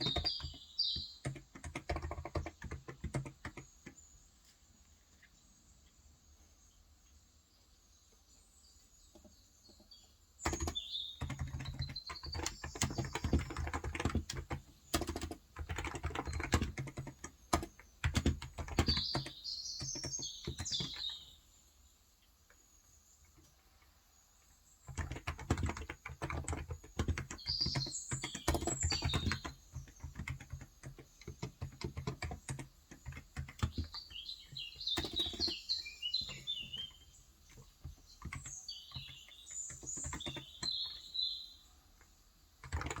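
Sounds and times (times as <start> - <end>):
typing on a keyboard: 0.0 - 4.1, 10.4 - 21.2, 24.8 - 41.2, 42.0 - 43.0
small birds chirping: 0.0 - 43.0.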